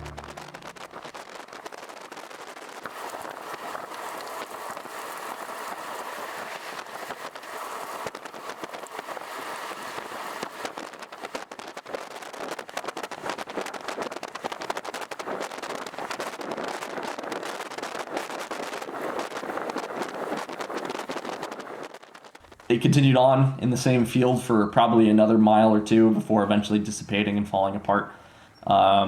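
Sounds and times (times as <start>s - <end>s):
rain striking a vehicle: 0.0s - 22.6s.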